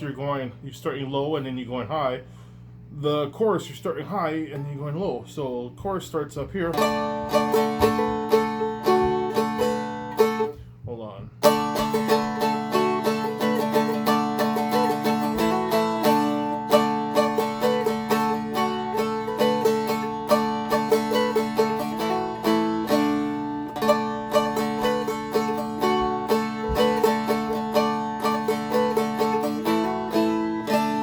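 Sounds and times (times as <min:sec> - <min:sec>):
acoustic guitar flatpicked melody: 0:06.6 - 0:31.0.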